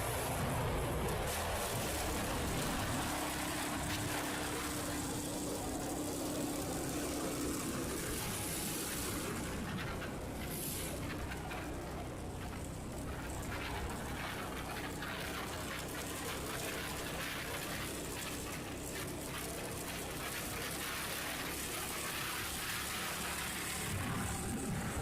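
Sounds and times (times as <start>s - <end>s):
motorcycle engine hum: 0.0s - 25.0s
wind rush and road noise: 0.0s - 25.0s.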